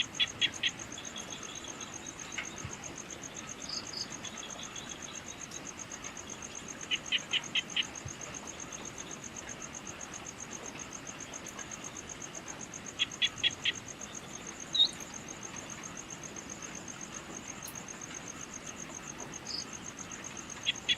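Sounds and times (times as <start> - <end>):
insects trilling: 0.0 - 20.9
bird chirp: 13.0 - 15.1.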